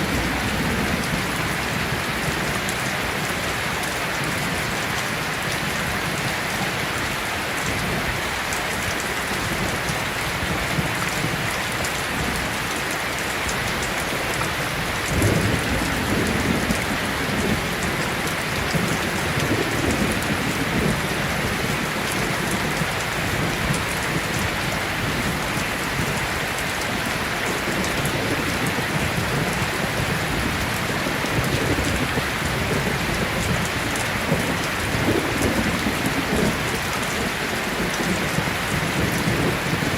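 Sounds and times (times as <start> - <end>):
thunder rumbling: 0.0 - 5.6, 13.6 - 39.9
heavy rain: 0.0 - 39.9.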